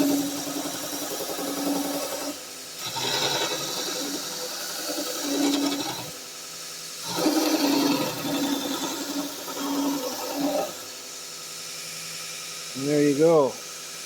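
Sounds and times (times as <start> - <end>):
belt sander grinding workpiece: 0.0 - 6.2, 7.0 - 11.0.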